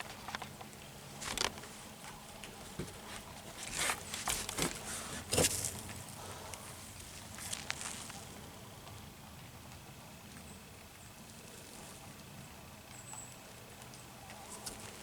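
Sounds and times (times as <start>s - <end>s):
footsteps on woodland trail: 0.0s - 8.3s.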